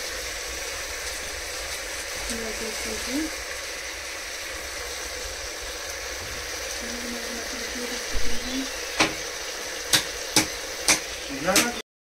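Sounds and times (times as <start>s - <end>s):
meat and onions sizzling in pot: 0.0s - 11.8s
spoon knocking against pot: 9.9s - 11.8s.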